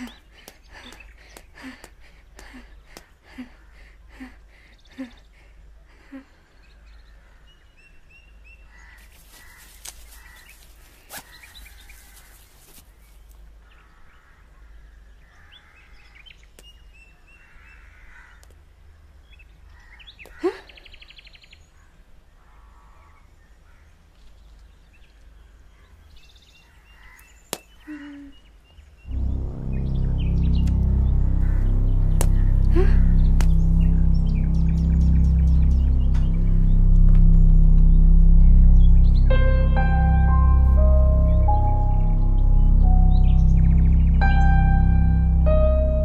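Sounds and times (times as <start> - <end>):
rough caw-like bird calls: 8.7 - 12.8, 13.7 - 16.1, 17.3 - 18.5, 21.8 - 24.0, 26.7 - 28.2
faint low hum: 29.0 - 46.0.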